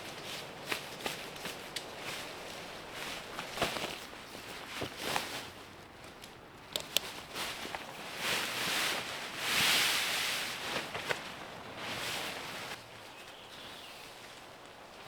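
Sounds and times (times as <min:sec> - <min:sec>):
rustling and swishing: 0:00.0 - 0:06.2, 0:06.8 - 0:13.2
sharp clicks: 0:06.2 - 0:07.1.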